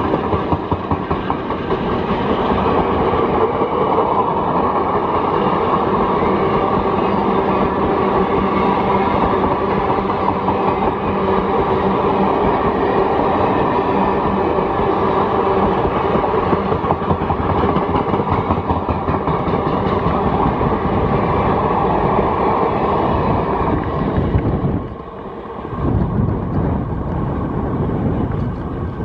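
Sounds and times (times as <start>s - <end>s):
train coaches rumbling past: 0.0s - 29.0s.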